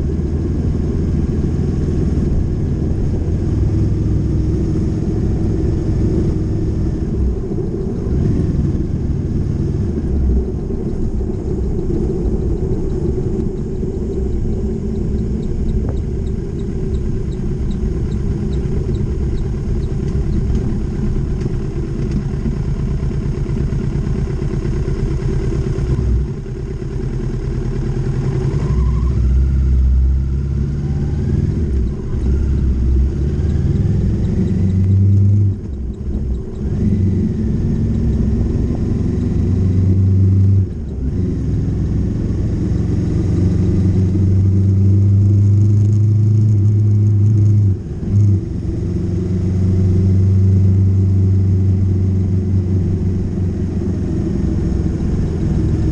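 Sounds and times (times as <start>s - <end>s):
wind rumble: 0.0s - 24.4s
motorcycle engine running: 0.0s - 55.9s.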